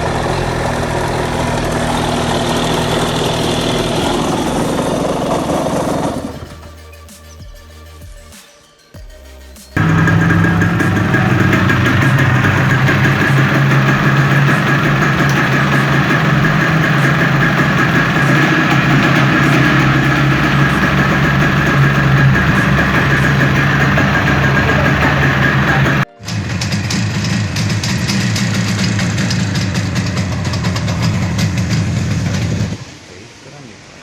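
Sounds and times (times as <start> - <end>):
another engine running: 0.0 - 6.8, 9.8 - 32.9
motorcycle engine idling: 0.0 - 6.8, 9.8 - 32.8.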